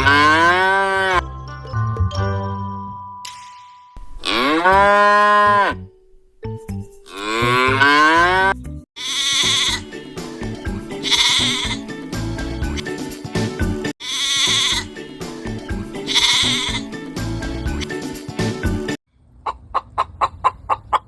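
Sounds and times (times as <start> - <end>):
cow mooing: 0.0 - 1.2, 4.0 - 5.9, 7.2 - 9.8
music with animal calls: 4.0 - 19.0.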